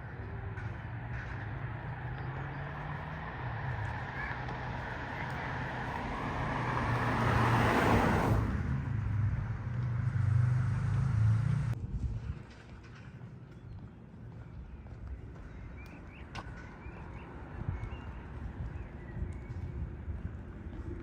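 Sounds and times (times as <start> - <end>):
car passing by: 0.5 - 11.8.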